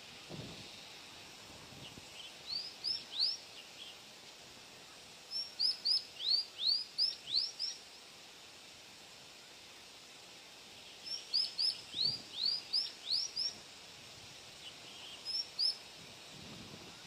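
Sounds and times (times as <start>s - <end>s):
steady hiss: 0.0s - 17.0s
songbird whistling: 2.5s - 3.4s, 5.4s - 7.8s, 11.1s - 13.6s, 15.0s - 15.8s.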